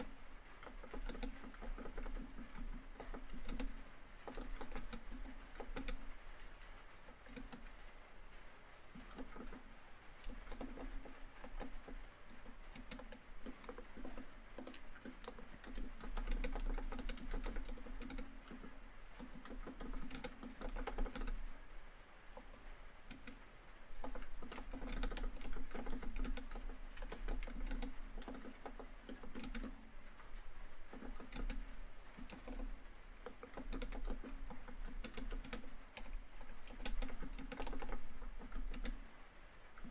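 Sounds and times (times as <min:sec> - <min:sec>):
typing on laptop keyboard: 0:00.0 - 0:08.0, 0:08.9 - 0:21.6, 0:22.3 - 0:39.1
rain on a tin roof: 0:00.0 - 0:39.9.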